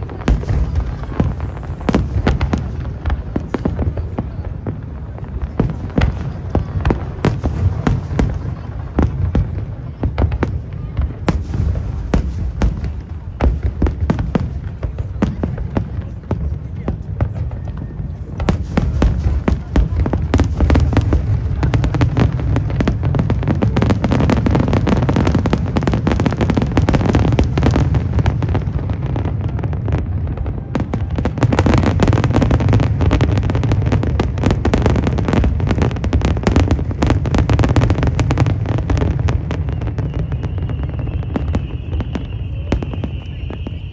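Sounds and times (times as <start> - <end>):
fireworks booming and crackling: 0.0 - 43.9.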